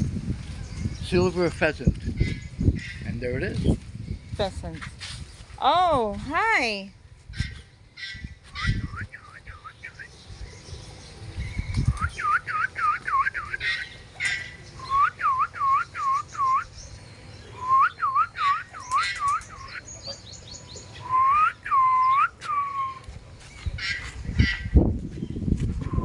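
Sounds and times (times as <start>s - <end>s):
whistled notes: 14.8s - 16.7s, 17.6s - 19.8s, 21.0s - 23.0s.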